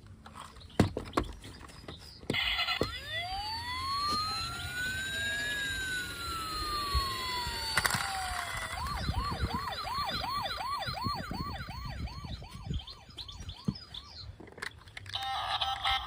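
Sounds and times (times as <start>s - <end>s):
electronic toy siren: 2.3s - 14.3s.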